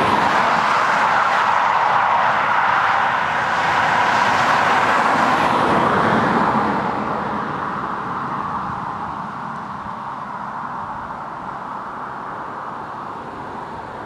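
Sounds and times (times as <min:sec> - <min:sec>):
tyres spinning in a burnout: 0:00.0 - 0:05.9.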